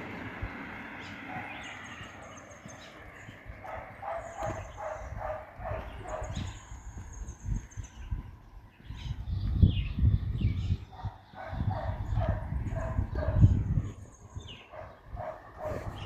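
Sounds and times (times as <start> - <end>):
dog barking: 1.0 - 6.7, 10.9 - 16.0.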